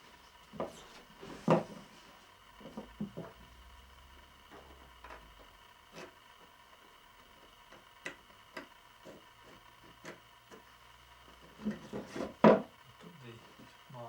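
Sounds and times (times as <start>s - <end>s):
knocks on wood: 12.0s - 12.7s.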